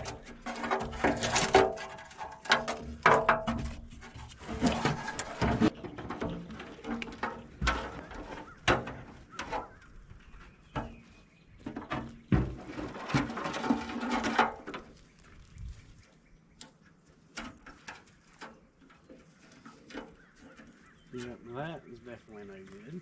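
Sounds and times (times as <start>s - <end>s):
parts scraping: 0.0s - 15.7s.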